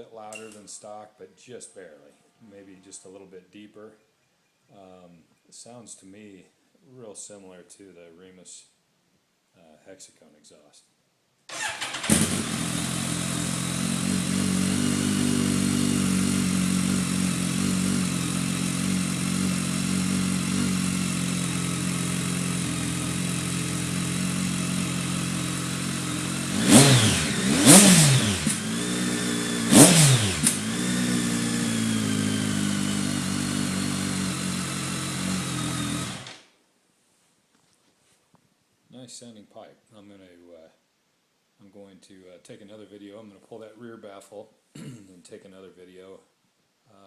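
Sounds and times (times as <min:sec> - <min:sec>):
engine revving: 0:11.5 - 0:36.4
motorcycle engine idling: 0:11.5 - 0:36.4.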